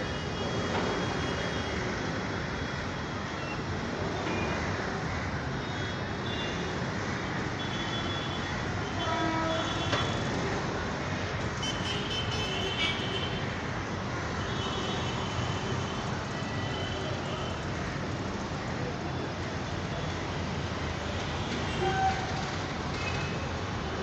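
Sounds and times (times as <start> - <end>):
rumble of passing vehicles: 0.0 - 24.0
vehicle horns honking: 11.6 - 13.4.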